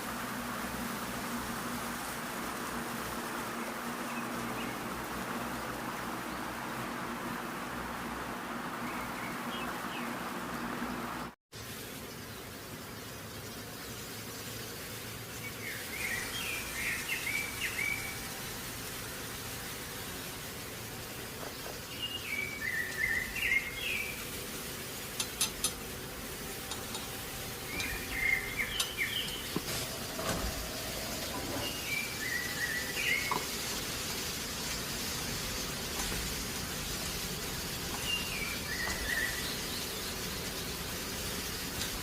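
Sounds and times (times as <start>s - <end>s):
steady hiss: 0.0s - 42.0s
bird chirping phrase: 27.6s - 33.4s.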